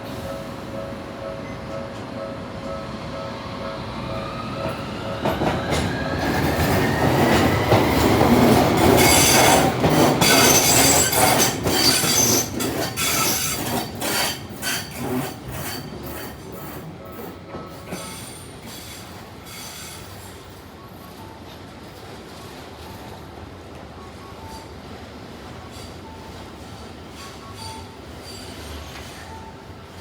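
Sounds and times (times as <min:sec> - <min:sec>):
tram motor whine: 0:00.0 - 0:12.6
wheels clacking over rail joints: 0:04.6 - 0:18.1
wheels squealing: 0:05.7 - 0:16.8.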